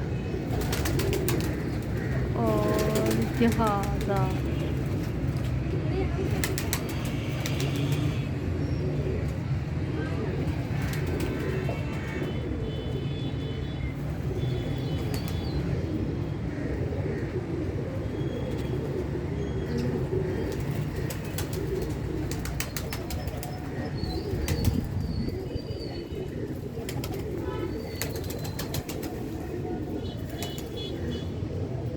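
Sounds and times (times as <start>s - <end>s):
bird wings flapping: 0.5s - 5.6s, 6.3s - 8.2s, 10.5s - 12.1s, 20.4s - 23.8s, 26.8s - 29.3s.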